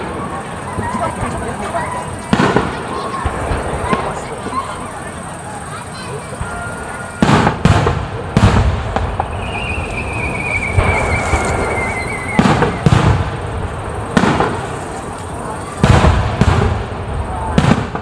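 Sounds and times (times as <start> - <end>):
fireworks bursting: 0.0 - 18.0
long whistle falling in pitch: 9.2 - 13.0.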